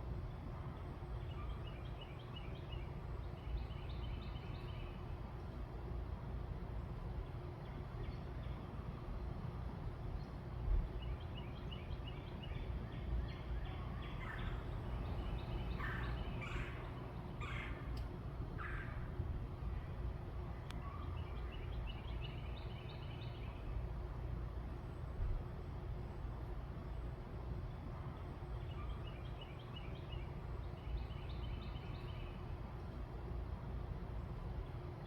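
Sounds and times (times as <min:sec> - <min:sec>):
low background rumble: 0:00.0 - 0:35.0
harsh bird calls: 0:13.8 - 0:18.0
bird trilling: 0:14.1 - 0:17.9.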